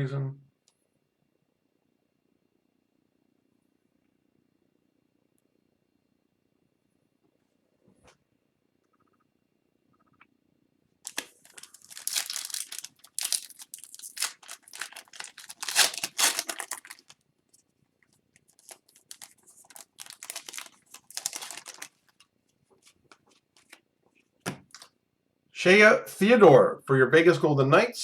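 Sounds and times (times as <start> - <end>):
card pack wrapper tearing and crinkling: 11.1 - 17.2, 18.4 - 22.2.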